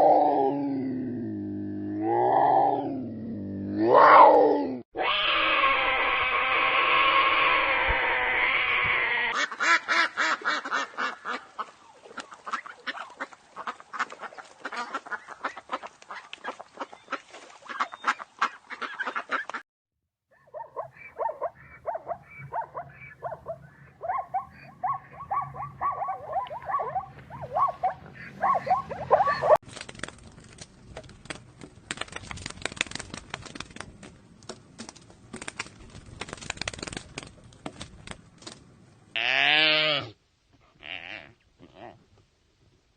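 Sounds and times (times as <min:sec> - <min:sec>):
ducks quacking: 0:07.9 - 0:19.6, 0:20.8 - 0:29.6.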